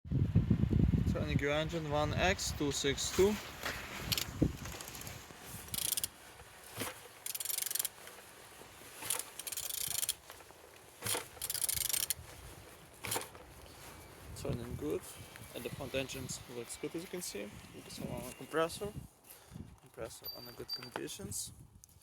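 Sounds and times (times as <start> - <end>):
ratchet wrench clicking and rasping: 4.1 - 5.0, 5.7 - 6.1, 7.2 - 7.9, 9.0 - 10.2, 11.1 - 12.2.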